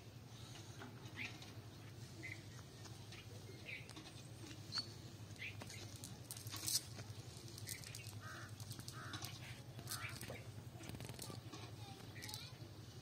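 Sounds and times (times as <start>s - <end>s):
rustle: 0.0s - 13.0s
small birds chirping: 0.3s - 13.0s.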